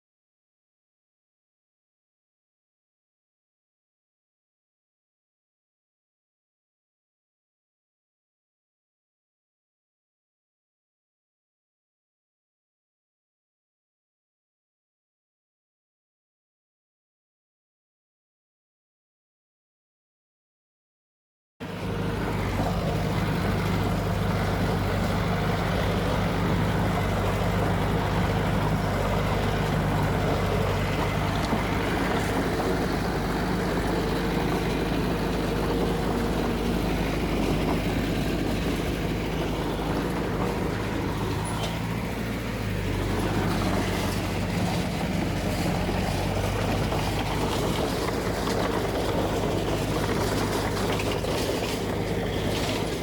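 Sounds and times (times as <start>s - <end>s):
heavy diesel engine running: 21.6s - 53.0s.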